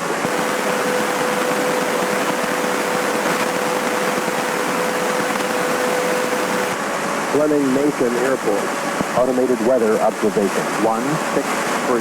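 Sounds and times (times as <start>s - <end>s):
aircraft engine drone: 0.0s - 6.8s
steady radio tone: 0.3s - 6.8s.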